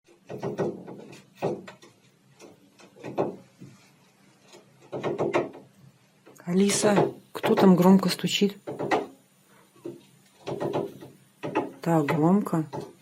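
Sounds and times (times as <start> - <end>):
woodpecker knocking on window: 0.1 - 3.7, 4.5 - 5.8, 6.7 - 7.9, 8.6 - 9.2, 9.8 - 13.0.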